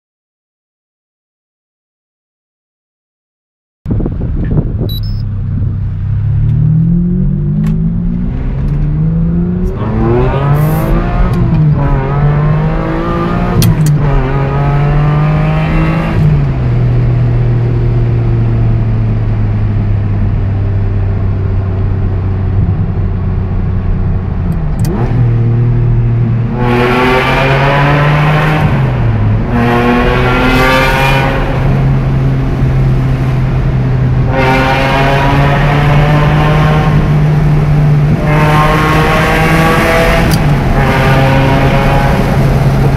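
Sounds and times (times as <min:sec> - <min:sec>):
sports car engine revving in a tunnel: 0:05.4 - 0:42.9.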